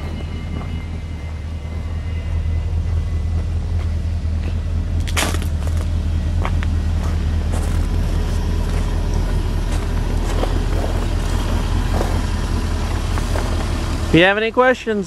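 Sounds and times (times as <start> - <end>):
pickup engine idling: 0.1 - 15.0.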